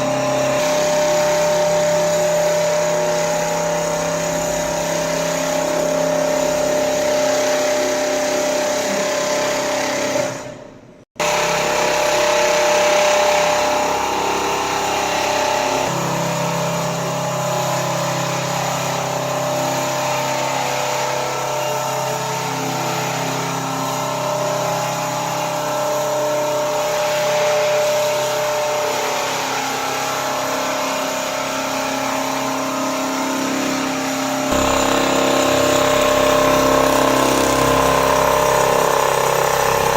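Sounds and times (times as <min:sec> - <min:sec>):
quilting machine whirring: 0:00.0 - 0:39.9
deeper hum: 0:34.5 - 0:37.4.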